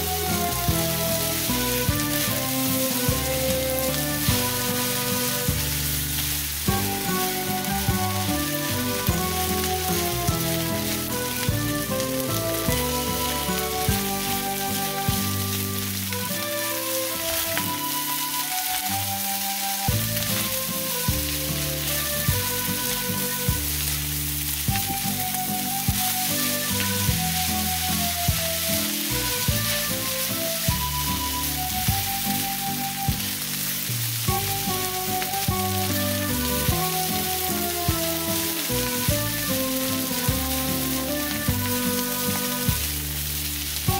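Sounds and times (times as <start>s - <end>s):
background music with beat: 0.0s - 43.9s
rice sizzling in a hot pan: 0.0s - 43.9s
spatulas stirring in pan: 0.2s - 27.2s.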